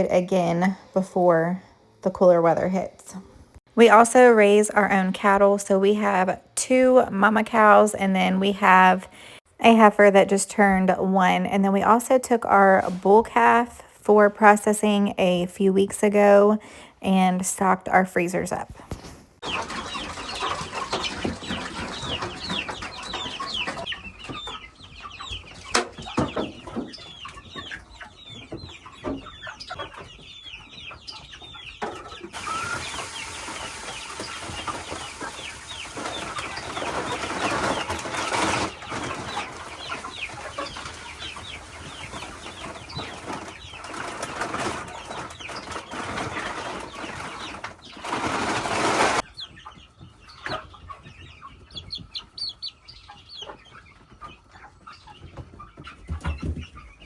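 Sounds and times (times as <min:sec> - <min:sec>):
young chickens cheeping and clucking: 0:19.0 - 0:57.0.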